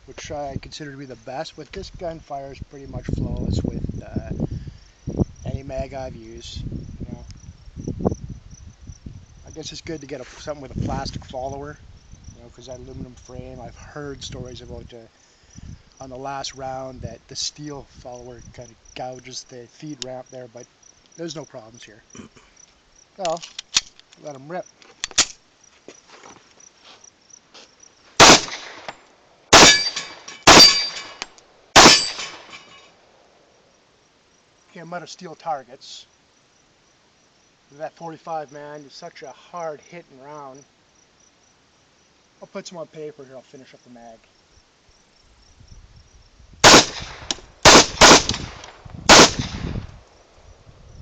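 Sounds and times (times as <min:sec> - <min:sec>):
pistol shots: 0:28.2 - 0:28.9, 0:29.5 - 0:31.1, 0:31.8 - 0:32.5, 0:46.6 - 0:49.8
steel target clanging: 0:28.2 - 0:33.0.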